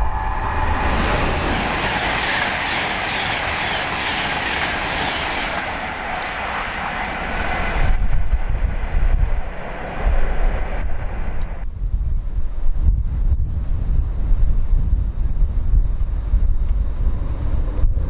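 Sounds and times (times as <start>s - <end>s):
train wheels rushing on rail: 0.0s - 11.6s
wind buffeting microphone: 0.0s - 18.0s.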